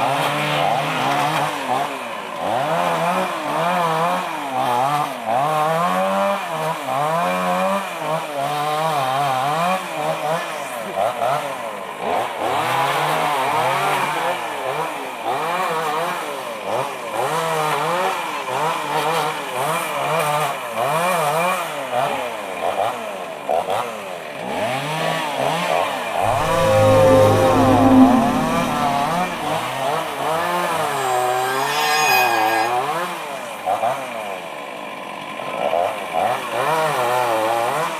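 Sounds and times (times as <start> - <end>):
low steady hum: 26.2 - 29.6.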